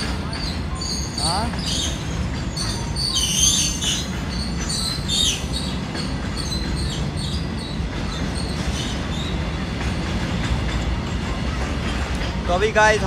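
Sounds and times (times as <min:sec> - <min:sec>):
metallic wheel squeals: 0:00.0 - 0:09.7
train wheels rumbling on rail: 0:00.0 - 0:13.0.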